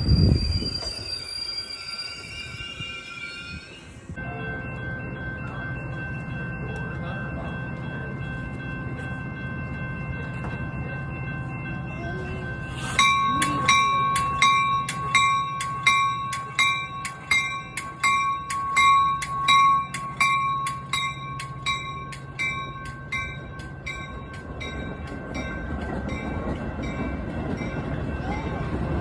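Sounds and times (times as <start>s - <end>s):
railroad bell ringing: 0.0s - 29.0s.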